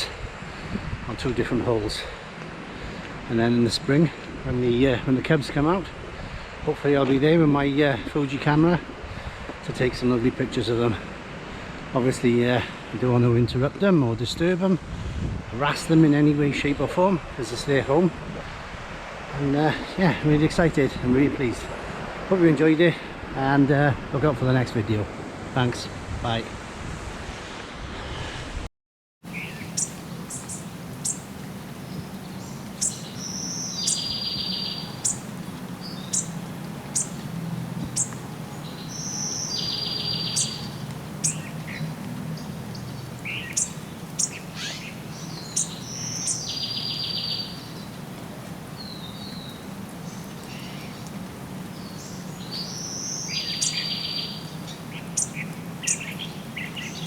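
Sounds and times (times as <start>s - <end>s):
birds chirping: 29.2s - 57.0s
bird trilling song: 29.3s - 48.1s, 48.8s - 57.0s.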